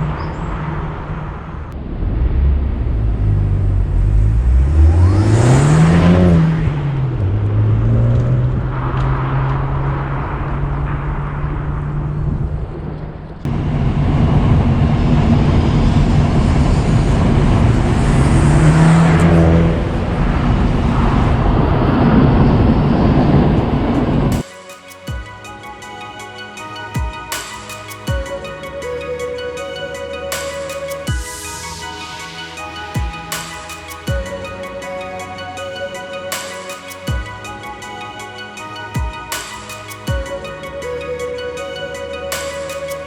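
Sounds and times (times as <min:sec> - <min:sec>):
car exhaust note accelerating: 0:01.8 - 0:12.4, 0:13.5 - 0:24.4.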